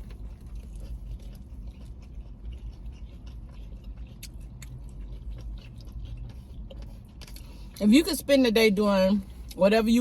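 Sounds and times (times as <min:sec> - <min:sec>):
person chewing: 0:00.0 - 0:07.8
low steady hum: 0:00.0 - 0:10.0.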